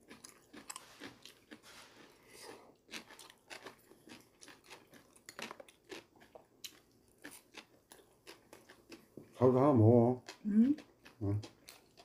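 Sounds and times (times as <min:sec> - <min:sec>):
person chewing: 0:00.0 - 0:09.4, 0:10.2 - 0:12.0.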